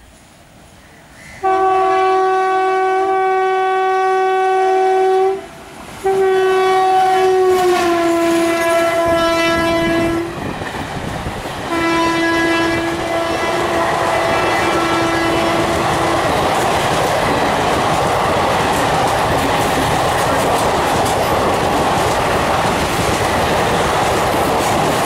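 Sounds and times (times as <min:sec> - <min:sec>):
locomotive horn blasts: 0:01.4 - 0:10.4, 0:11.7 - 0:16.4
train wheels on rails: 0:05.2 - 0:25.0.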